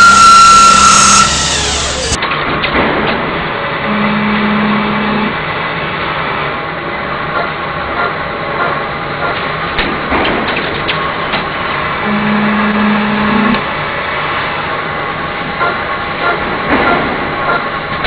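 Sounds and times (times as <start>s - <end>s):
sharp clicks: 0.0s - 2.3s
lathe mechanical clatter: 0.0s - 3.8s.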